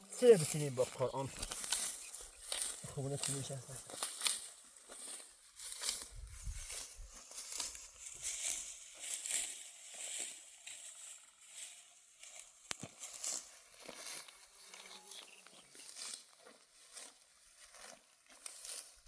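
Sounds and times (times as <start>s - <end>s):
dry stalks rustling and crackling: 0.0s - 19.0s
stalk snapping: 1.3s - 10.3s.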